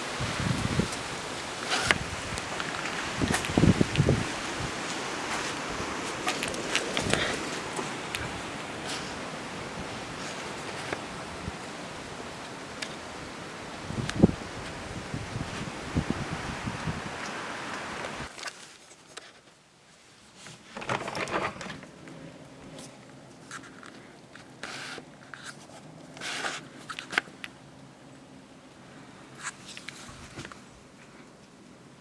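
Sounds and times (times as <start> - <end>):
wind buffeting microphone: 0.0 - 18.3
short rustles and scrapes: 0.4 - 9.2, 22.6 - 27.2.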